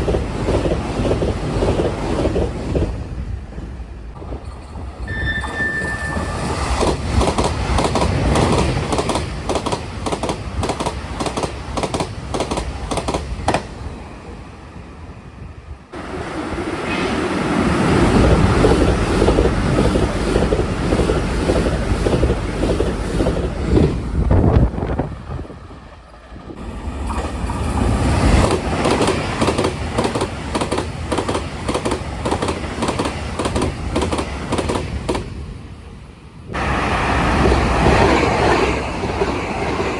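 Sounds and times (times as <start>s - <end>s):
express train passing: 0.0s - 39.9s
wheels clacking over rail joints: 4.1s - 13.8s, 17.9s - 35.4s.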